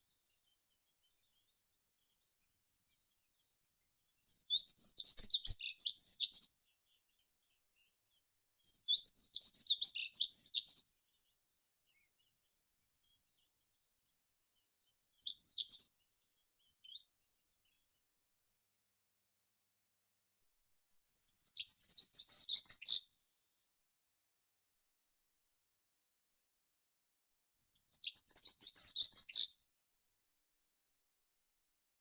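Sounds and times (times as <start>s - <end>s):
songbird singing: 2.0s - 6.5s.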